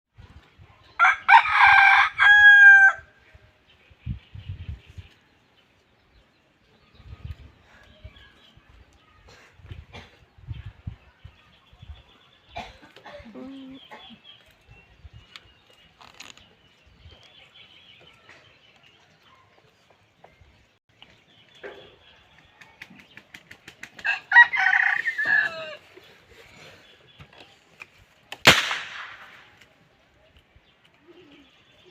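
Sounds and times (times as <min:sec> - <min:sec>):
rooster crowing: 0:01.0 - 0:03.1, 0:24.1 - 0:25.8
sharp crack: 0:28.3 - 0:29.8.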